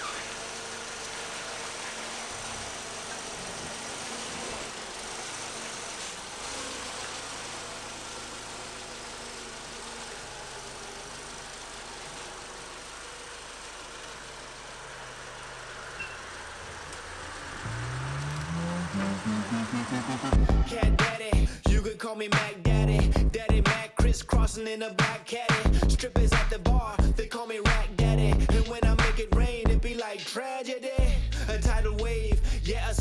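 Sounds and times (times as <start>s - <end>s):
car engine idling: 0.1s - 21.8s.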